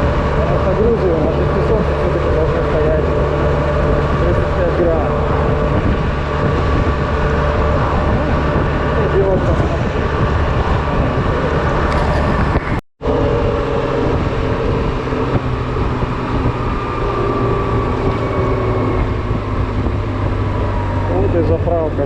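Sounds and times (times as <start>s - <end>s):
scooter engine hum: 0.0s - 22.0s
wind and road noise: 0.0s - 22.0s.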